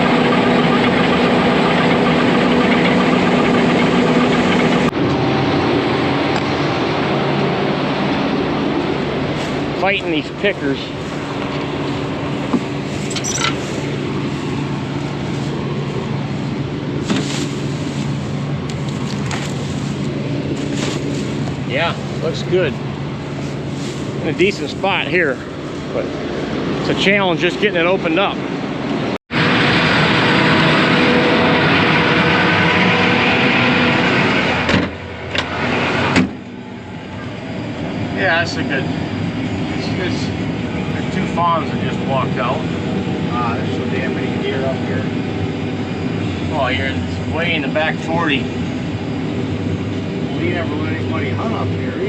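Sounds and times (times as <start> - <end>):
combine harvester hum: 0.0 - 52.0
crackles and rattles: 8.8 - 26.0.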